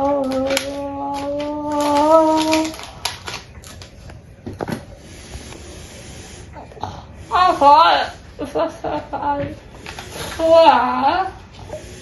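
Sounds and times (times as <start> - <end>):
adhesive tape crackling: 0.0 - 4.2.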